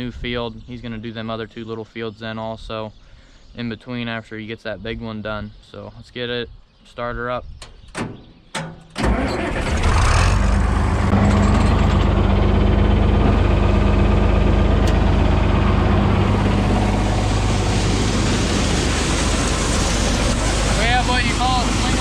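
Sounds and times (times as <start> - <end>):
tractor engine starting and running: 7.7 - 22.0.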